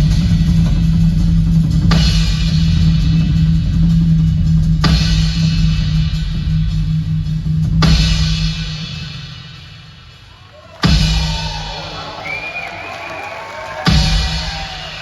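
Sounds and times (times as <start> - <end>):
rock band full-band hits: 10.3 - 15.0.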